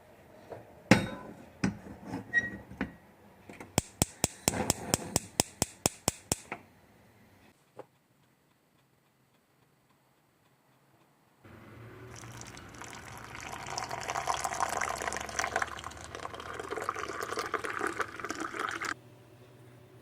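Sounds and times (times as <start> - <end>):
sharp evenly spaced clicks: 3.8 - 4.5, 5.2 - 6.5.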